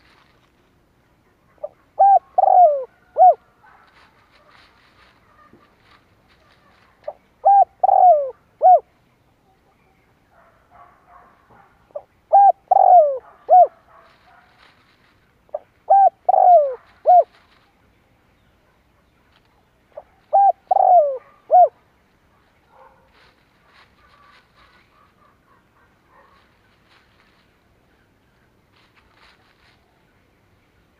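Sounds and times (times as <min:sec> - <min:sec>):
dove cooing: 0:01.5 - 0:08.9, 0:11.9 - 0:13.9, 0:15.5 - 0:17.6, 0:20.0 - 0:21.8.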